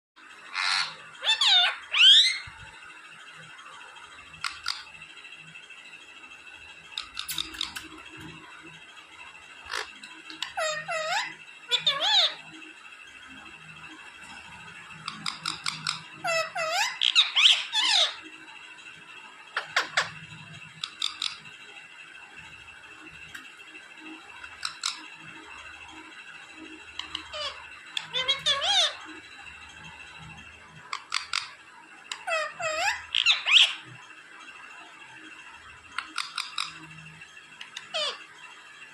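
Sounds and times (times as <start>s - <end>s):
parrot squawking: 0.5s - 2.6s, 4.4s - 4.9s, 7.0s - 8.3s, 9.6s - 12.4s, 15.0s - 18.2s, 20.8s - 21.4s, 24.5s - 25.1s, 27.0s - 29.1s, 30.9s - 33.8s, 36.0s - 36.8s, 37.6s - 38.3s.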